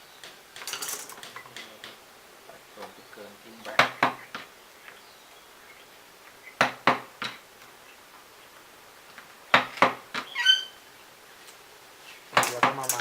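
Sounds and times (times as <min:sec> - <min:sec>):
brief high squeak: 0:10.3 - 0:10.8.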